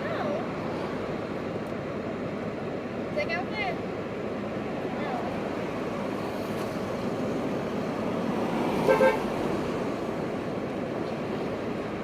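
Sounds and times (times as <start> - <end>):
street traffic noise: 0.0 - 12.0
car horn toots: 8.8 - 9.3.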